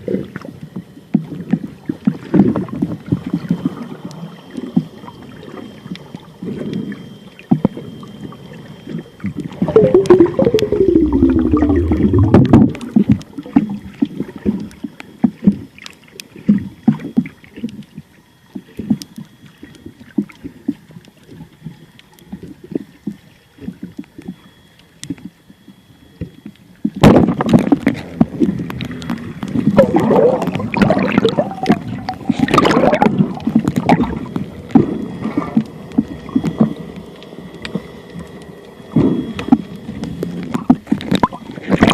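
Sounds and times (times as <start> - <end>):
water rushing and bubbling: 9.4 - 13.9, 27.0 - 41.9
water sloshing: 9.6 - 12.8, 29.2 - 35.7.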